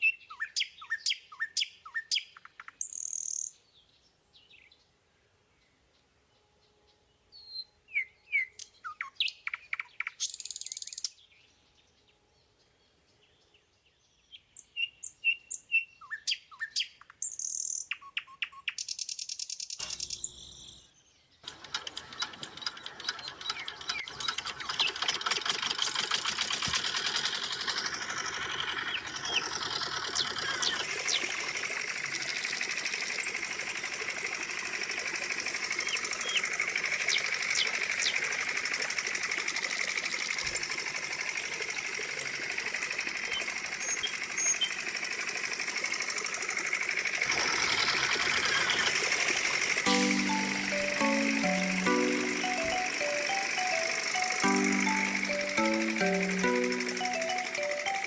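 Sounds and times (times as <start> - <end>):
small water pump motor buzzing: 26.0 - 49.8.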